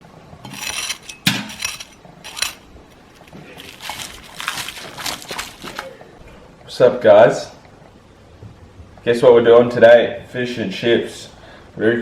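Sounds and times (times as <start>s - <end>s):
dishes and utensils clattering: 0.4s - 5.9s.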